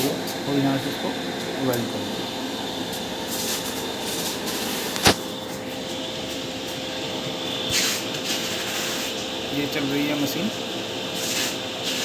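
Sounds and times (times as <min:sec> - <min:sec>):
welding machine humming: 0:02.9 - 0:12.0
sharp click: 0:05.0 - 0:05.2.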